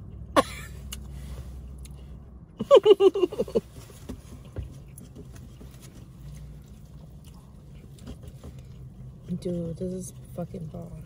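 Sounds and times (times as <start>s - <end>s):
low steady hum: 0.0s - 11.0s
people chewing food: 4.3s - 11.0s.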